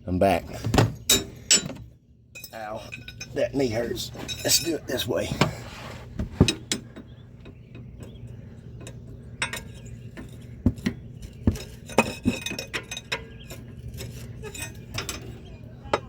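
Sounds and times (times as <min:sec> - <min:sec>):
steady low hum: 0:00.0 - 0:16.0
wrench clinking on metal: 0:01.0 - 0:01.8, 0:02.4 - 0:05.0, 0:08.8 - 0:16.0.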